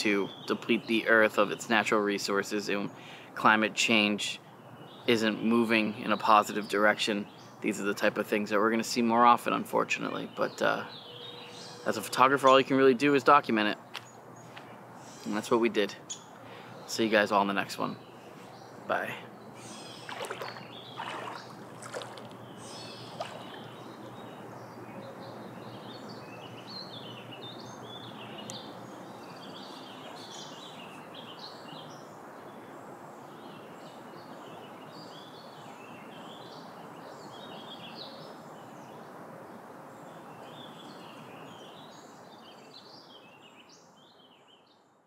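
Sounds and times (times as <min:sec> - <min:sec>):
songbirds chirping: 0:00.0 - 0:45.0
outdoor hiss: 0:01.2 - 0:03.6, 0:12.4 - 0:24.1.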